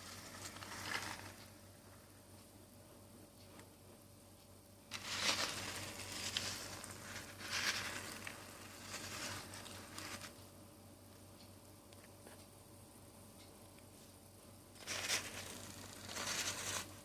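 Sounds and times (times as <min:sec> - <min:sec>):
rustling scraping handling noise: 0:00.0 - 0:01.6, 0:04.9 - 0:10.4, 0:14.8 - 0:17.0.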